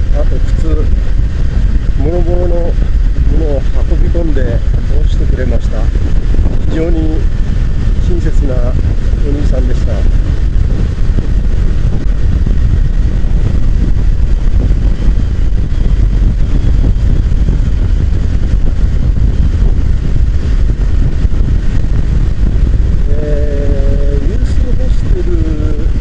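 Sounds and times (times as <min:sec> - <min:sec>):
motorcycle road noise: 0:00.0 - 0:26.0
wind buffeting microphone: 0:00.0 - 0:26.0.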